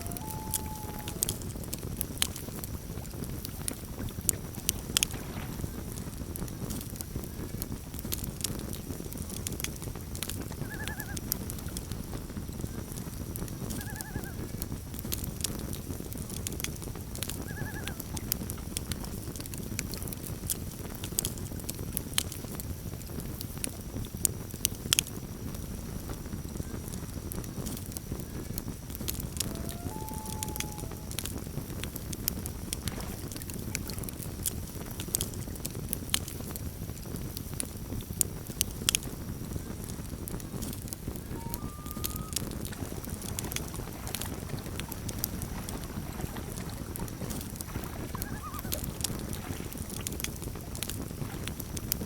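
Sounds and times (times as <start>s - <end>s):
short wavering calls: 0.0s - 1.5s, 29.4s - 31.2s, 41.2s - 43.5s, 48.1s - 48.9s
campfire crackling and popping: 0.0s - 52.0s.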